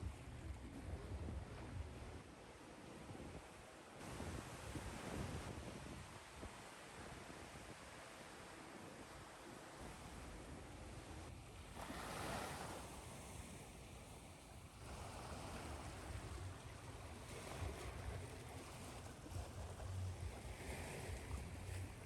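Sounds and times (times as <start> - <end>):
ocean surf washing ashore: 11.8 - 14.2.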